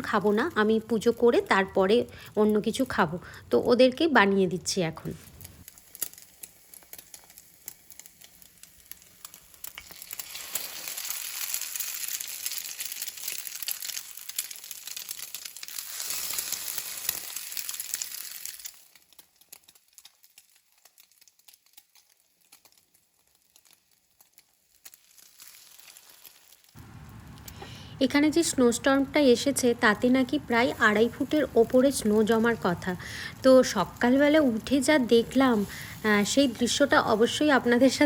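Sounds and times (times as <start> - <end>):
bread sizzling in a pan: 5.0 - 38.0
faint crackling: 5.0 - 38.0.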